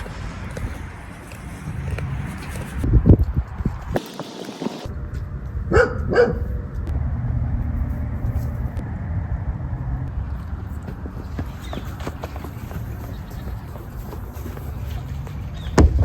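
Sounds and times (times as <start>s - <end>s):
steady low rumble: 4.8s - 11.6s
dog barking: 5.7s - 6.6s.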